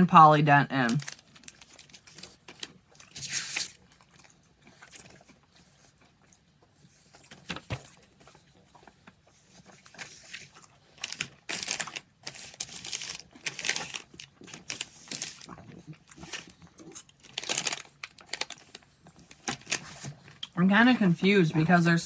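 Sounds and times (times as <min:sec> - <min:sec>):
wrappers crinkling and tearing: 0:00.8 - 0:05.2, 0:09.7 - 0:20.4.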